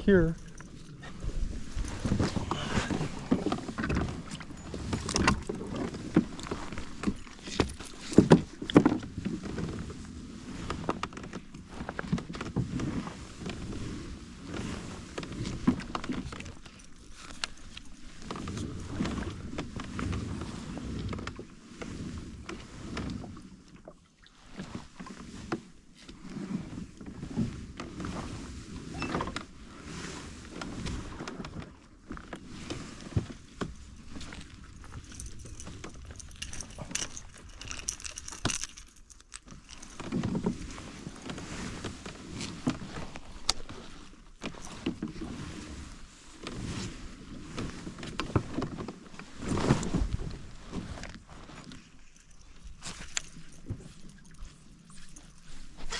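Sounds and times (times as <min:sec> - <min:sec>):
water lapping against hull: 0:00.0 - 0:55.9
kayak knocks and clicks: 0:00.5 - 0:10.0, 0:30.6 - 0:45.8.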